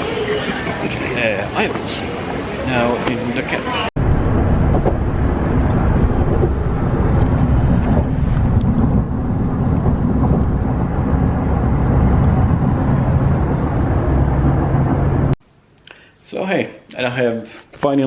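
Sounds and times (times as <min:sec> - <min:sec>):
vehicle road and engine rumble: 0:00.0 - 0:15.4
low hum: 0:04.0 - 0:15.4.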